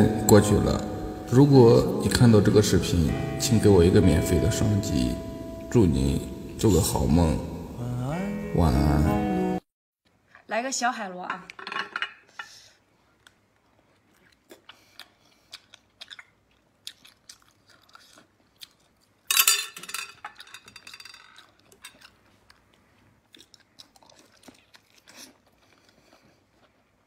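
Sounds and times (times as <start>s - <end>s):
person chewing: 13.0s - 19.3s, 21.2s - 27.0s.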